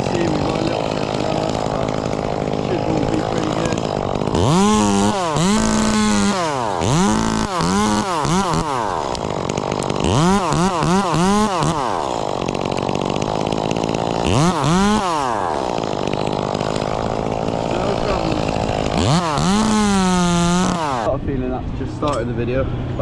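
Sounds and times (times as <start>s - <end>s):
chainsaw revving: 0.0s - 21.2s.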